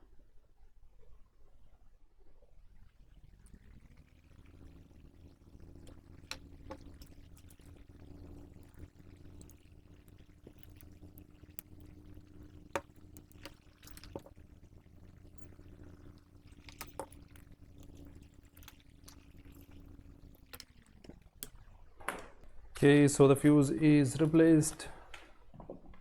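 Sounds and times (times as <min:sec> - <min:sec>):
steady low hum: 0:02.7 - 0:21.8
soldering clicks and taps: 0:04.6 - 0:21.6.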